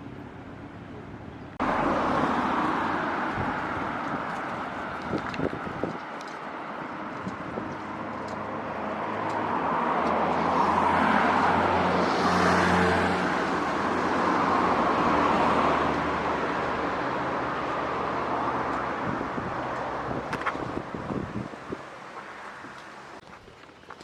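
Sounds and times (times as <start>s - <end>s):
road vehicle passing: 0.0s - 24.0s.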